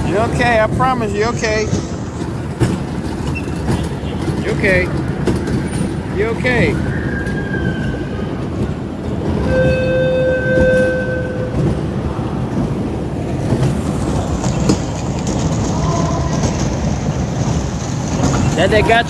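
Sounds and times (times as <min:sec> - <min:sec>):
train rumble and clatter: 0:00.0 - 0:19.0
train horn held note: 0:09.4 - 0:11.9.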